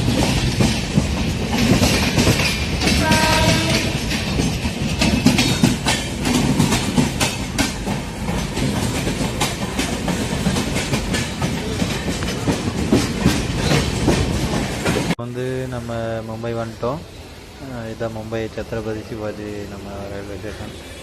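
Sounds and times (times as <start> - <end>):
train wheels clacking on rails: 0.0 - 15.2
train rumble: 0.0 - 21.0.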